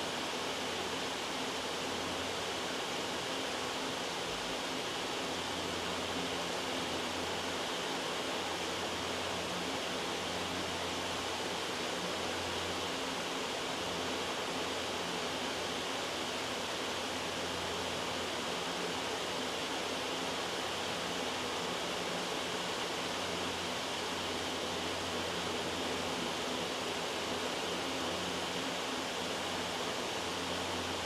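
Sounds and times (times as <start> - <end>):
white noise hiss: 0.0 - 31.0.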